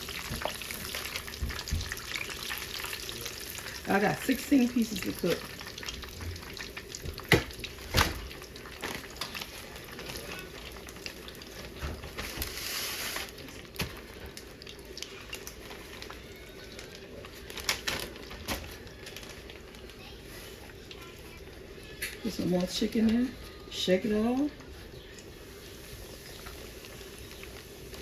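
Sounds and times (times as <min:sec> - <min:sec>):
chicken frying in hot oil: 0:00.0 - 0:28.0.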